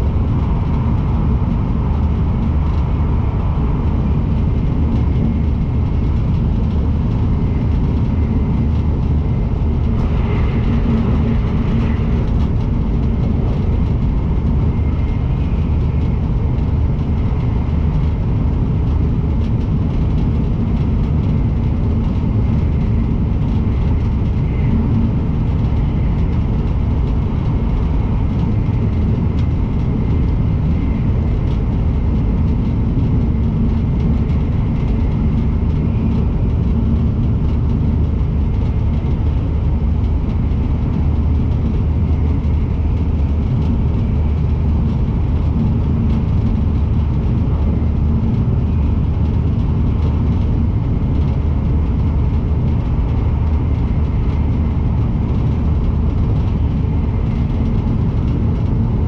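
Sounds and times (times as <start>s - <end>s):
train cabin rumble: 0.0s - 59.0s.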